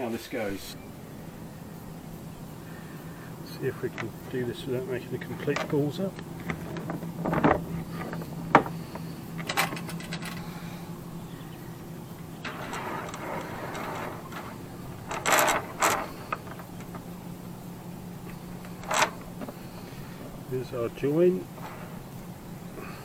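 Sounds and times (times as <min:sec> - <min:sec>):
steady low hum: 0:00.0 - 0:23.0
rope rustling and scraping: 0:05.3 - 0:10.8, 0:12.4 - 0:17.2, 0:21.5 - 0:22.2.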